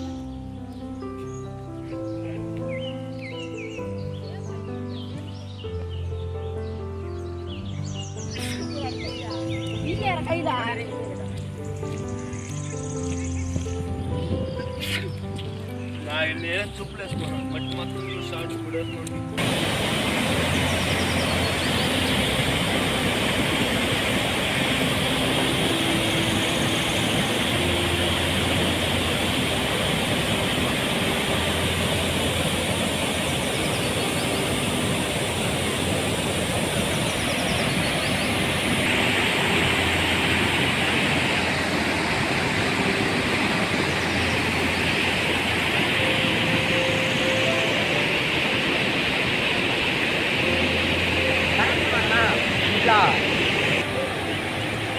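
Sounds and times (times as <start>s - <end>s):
water rushing at a dam: 19.4s - 54.9s.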